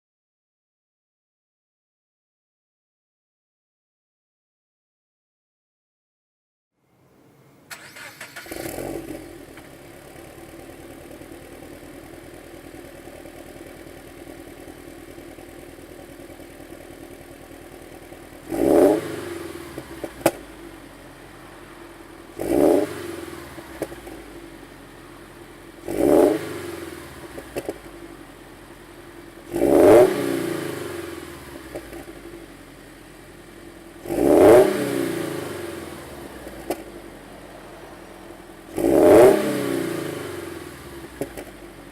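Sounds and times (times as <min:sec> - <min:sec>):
car engine idling and revving: 0:07.7 - 0:41.9.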